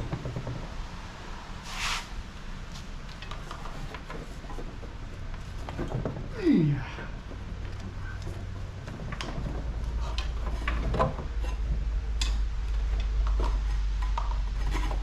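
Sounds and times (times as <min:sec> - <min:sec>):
steady low hum: 0:04.4 - 0:15.0.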